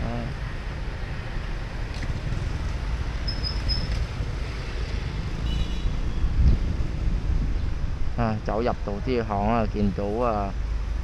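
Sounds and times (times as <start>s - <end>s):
street traffic rumbling: 0.0s - 11.0s
wind buffeting microphone: 2.0s - 8.8s.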